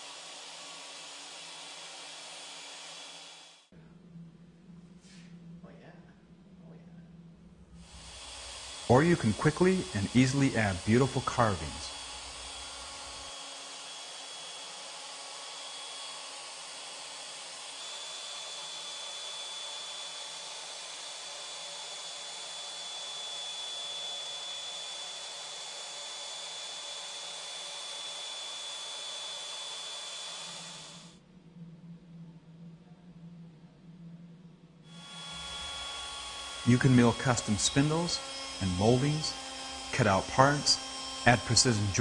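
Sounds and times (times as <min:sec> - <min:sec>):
router hissing with high whine: 0:00.0 - 0:03.7, 0:07.8 - 0:31.2, 0:34.9 - 0:42.0
faint low hum: 0:03.7 - 0:08.0, 0:31.2 - 0:35.6.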